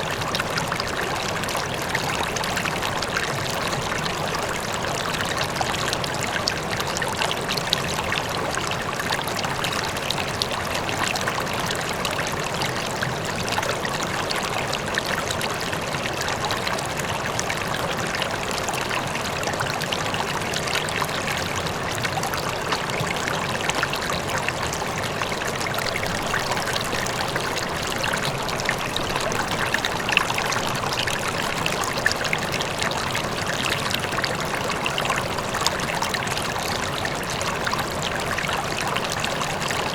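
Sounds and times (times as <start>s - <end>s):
distant waterfall: 0.0s - 39.9s
river water flowing over stones: 0.0s - 39.9s.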